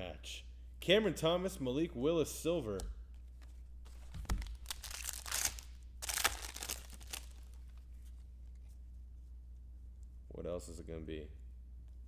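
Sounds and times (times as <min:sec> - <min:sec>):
foil wrapper crinkling: 0:03.8 - 0:07.9.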